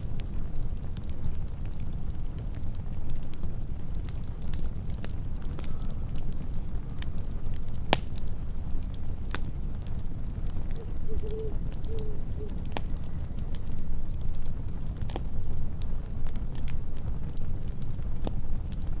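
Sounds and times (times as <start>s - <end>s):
crickets chirping: 0.0s - 18.9s
campfire rumble: 0.0s - 19.0s
fire crackles and pops: 0.0s - 19.0s
short low calls: 10.8s - 12.6s.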